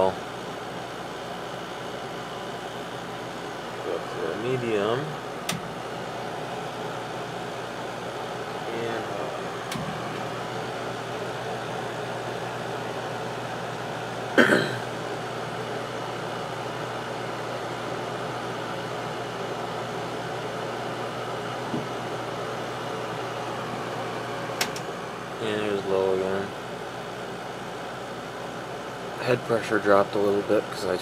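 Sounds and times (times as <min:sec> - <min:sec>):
window air conditioner running: 0:00.0 - 0:31.0
sharp click: 0:05.5 - 0:05.7, 0:24.6 - 0:24.9.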